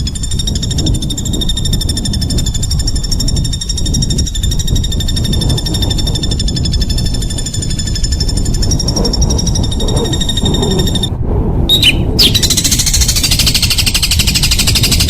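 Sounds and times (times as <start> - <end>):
animal buzzing trill: 0.0 - 11.1
heavy low rumble: 0.0 - 15.0.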